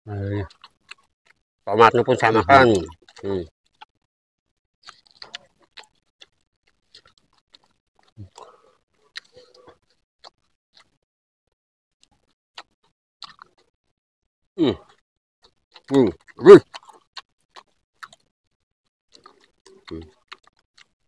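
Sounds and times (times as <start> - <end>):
chewing mouth sounds: 0.4 - 1.4, 2.1 - 4.1, 4.8 - 11.0, 12.0 - 13.7, 14.8 - 21.0
small clicks and ticks: 2.9 - 11.0.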